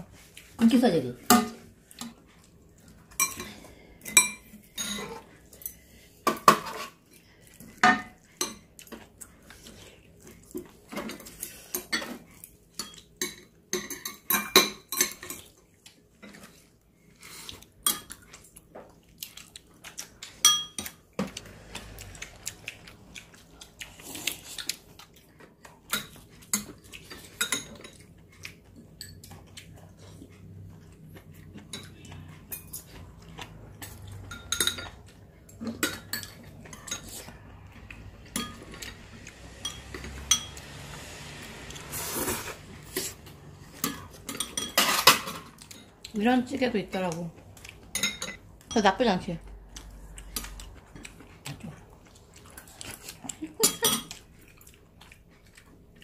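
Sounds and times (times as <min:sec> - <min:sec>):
utensils clinking on bowls: 0:03.1 - 0:07.0, 0:10.9 - 0:15.6, 0:20.4 - 0:21.4, 0:25.9 - 0:28.1, 0:33.8 - 0:37.3, 0:38.2 - 0:40.7, 0:42.9 - 0:45.9, 0:47.9 - 0:49.1, 0:53.4 - 0:54.2.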